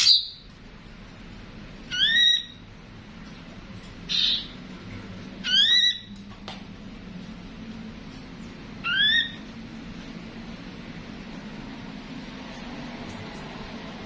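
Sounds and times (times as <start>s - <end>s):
bird whistled call: 1.9s - 2.6s, 8.8s - 9.4s.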